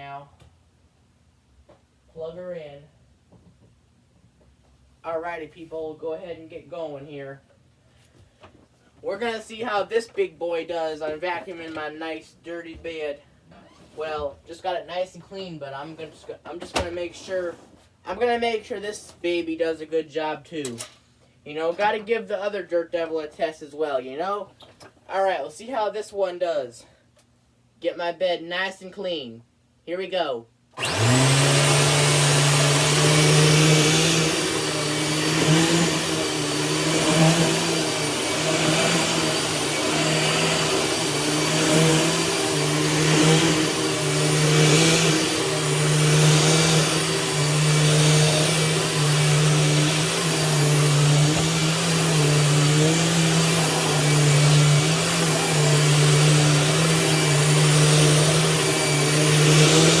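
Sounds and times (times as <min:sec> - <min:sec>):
vacuum cleaner running: 0:30.8 - 1:00.0.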